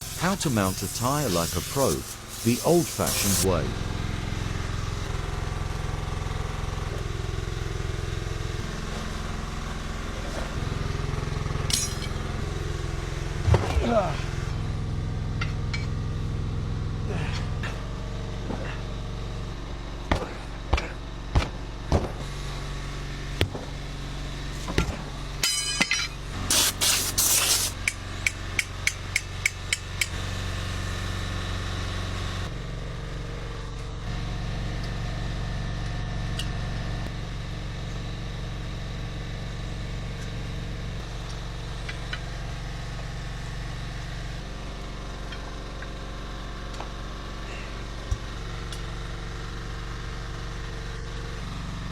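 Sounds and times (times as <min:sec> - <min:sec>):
low engine hum: 0:00.0 - 0:25.4.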